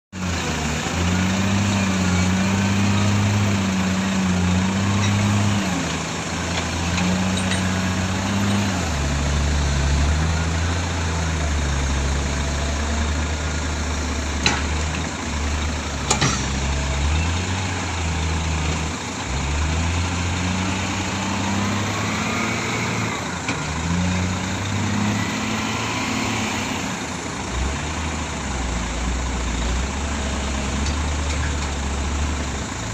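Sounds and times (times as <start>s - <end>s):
heavy diesel engine revving: 0.2s - 32.9s.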